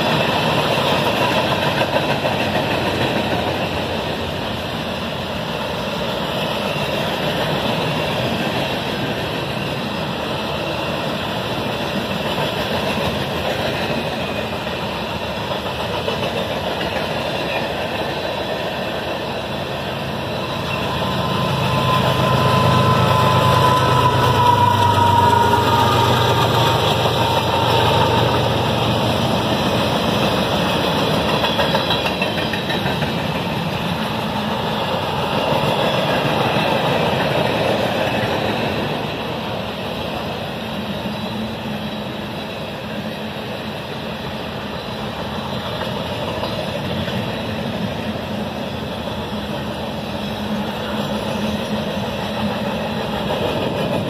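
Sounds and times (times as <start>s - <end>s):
diesel locomotive engine hum: 0.0s - 54.0s
rumble of steel wheels on rail: 0.0s - 54.0s
faint wheel squeal: 20.4s - 26.4s.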